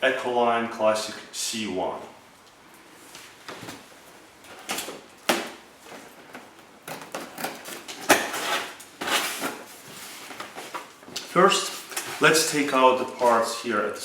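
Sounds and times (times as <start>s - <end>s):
cardboard scraping and rustling: 5.8s - 13.5s.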